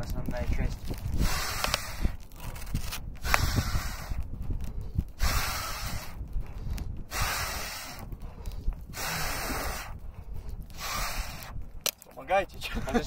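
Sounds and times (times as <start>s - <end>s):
rhythmic breath-like hissing: 1.1s - 2.2s, 3.2s - 11.6s.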